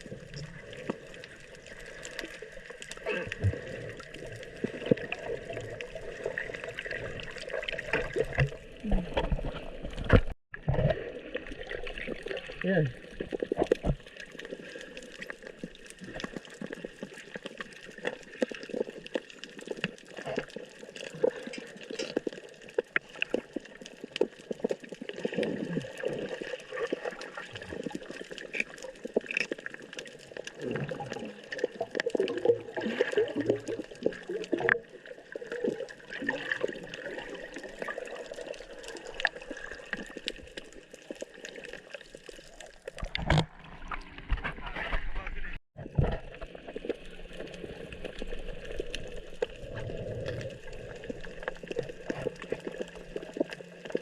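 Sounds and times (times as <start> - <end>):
small crackles and clicks: 0.0 - 10.8, 11.4 - 54.0
water sloshing and gurgling: 0.0 - 54.0.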